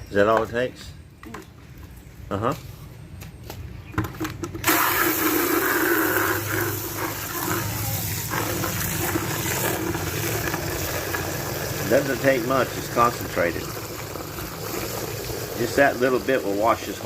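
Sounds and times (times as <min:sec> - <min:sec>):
water gushing from hose into bucket: 0:04.6 - 0:17.0.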